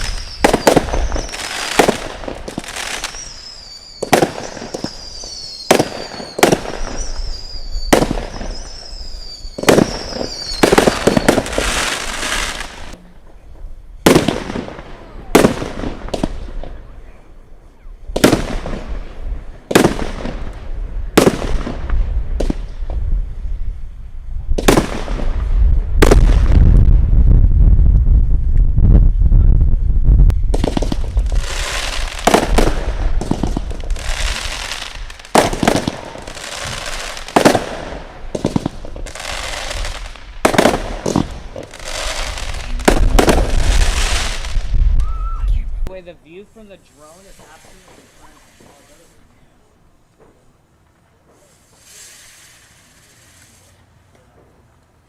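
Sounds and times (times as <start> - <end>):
falling firework whistle: 0.0 - 17.0, 22.4 - 45.7
fireworks bangs: 0.0 - 50.6, 51.2 - 53.7
firework crackle: 0.0 - 54.6
heavy low rumble: 25.3 - 31.4, 42.3 - 46.1.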